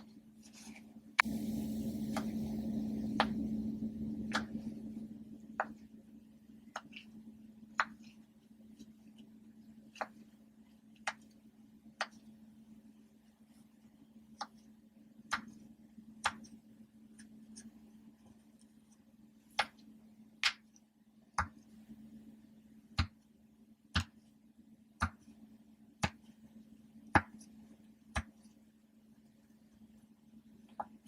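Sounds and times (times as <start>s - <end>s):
low hum: 1.2s - 7.8s.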